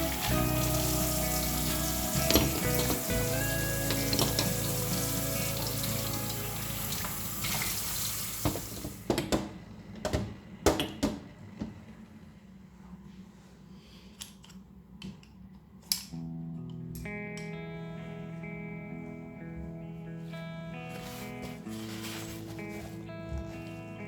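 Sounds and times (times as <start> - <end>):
soft background music: 0.0 - 8.4, 16.2 - 24.0
steady kitchen hiss: 0.0 - 9.1.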